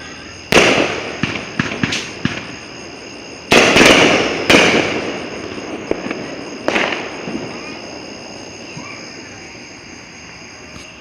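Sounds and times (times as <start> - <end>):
loud firework bangs: 0.0 - 9.6
small firework pops: 0.5 - 2.6, 3.5 - 7.7, 10.7 - 11.0.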